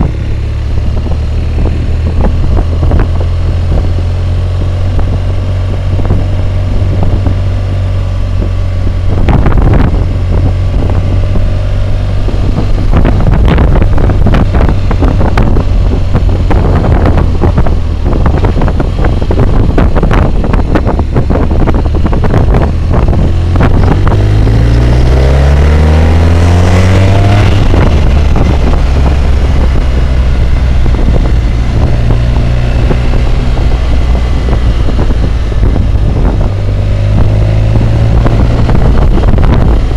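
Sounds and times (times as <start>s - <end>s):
motorcycle engine running: 0.0s - 39.9s
wind roar on microphone: 0.0s - 39.9s.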